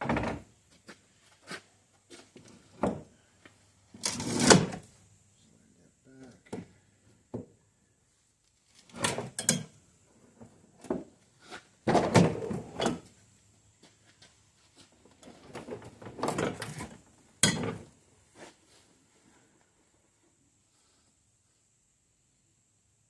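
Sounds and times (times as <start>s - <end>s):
metal hardware clunking and rattling: 17.4s - 17.9s.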